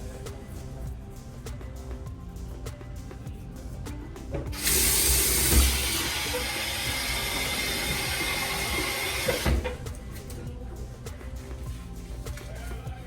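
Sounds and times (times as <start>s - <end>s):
faucet running: 4.5s - 9.9s.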